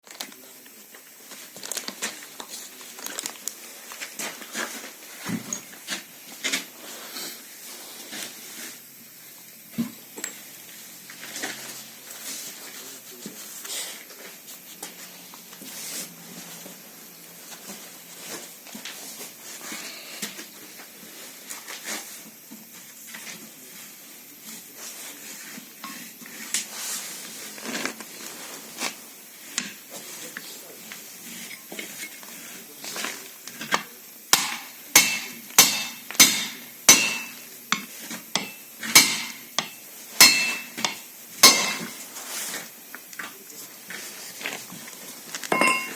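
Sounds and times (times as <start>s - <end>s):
loud sharp metal knocks: 34.3s - 37.4s, 38.4s - 41.9s
metal tools clinking: 34.4s - 42.0s, 45.5s - 45.9s.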